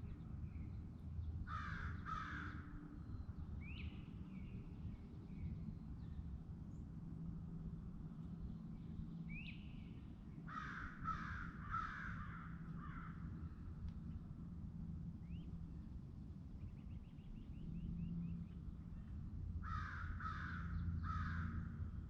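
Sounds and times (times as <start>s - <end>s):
steady low hum: 0.0s - 22.0s
crow cawing: 1.5s - 2.6s, 10.5s - 13.2s, 19.6s - 21.7s.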